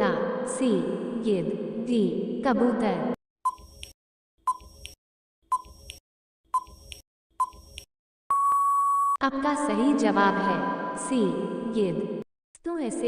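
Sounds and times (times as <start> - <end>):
long steady beep: 8.3 - 9.2, 10.4 - 11.7.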